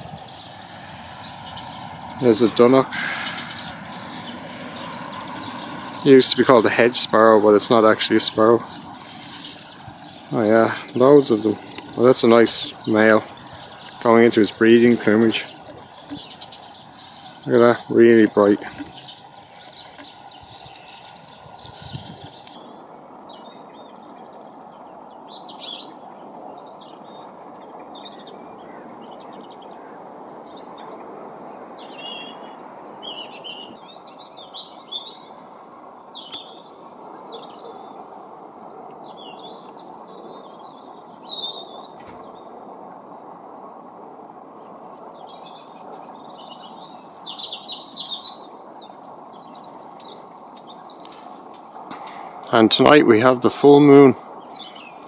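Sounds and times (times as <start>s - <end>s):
low rushing background noise: 0.0s - 55.0s
songbirds chirping and twittering: 0.0s - 55.0s.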